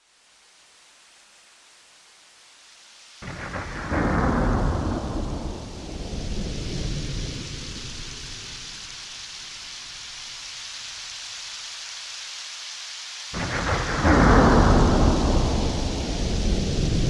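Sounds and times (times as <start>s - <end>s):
heavy rain hiss: 0.0s - 17.0s
thunder rumbling: 3.2s - 9.1s, 13.4s - 17.0s.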